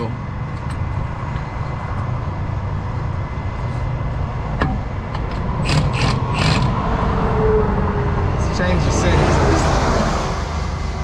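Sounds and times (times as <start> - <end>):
low engine rumble: 0.0 - 11.0
ratcheting rasps: 5.2 - 6.8.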